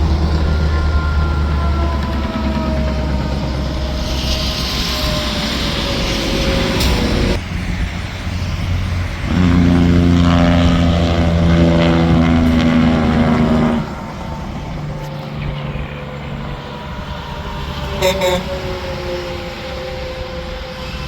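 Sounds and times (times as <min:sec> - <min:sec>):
highway traffic rumble: 0:00.0 - 0:21.0
truck air horn blast: 0:09.2 - 0:21.0.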